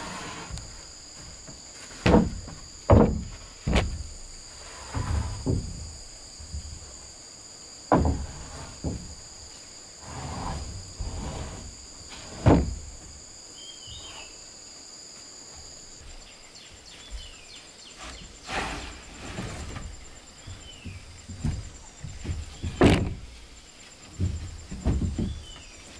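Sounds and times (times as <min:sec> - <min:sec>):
insects droning: 0:00.0 - 0:25.9
wooden knocks and thuds: 0:00.1 - 0:07.1, 0:07.9 - 0:09.4, 0:10.3 - 0:13.3, 0:19.3 - 0:25.9.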